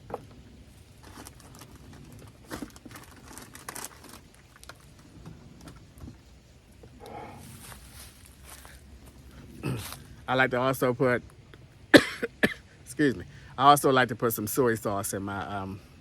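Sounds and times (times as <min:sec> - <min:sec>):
food packaging crinkling: 0:01.0 - 0:05.1.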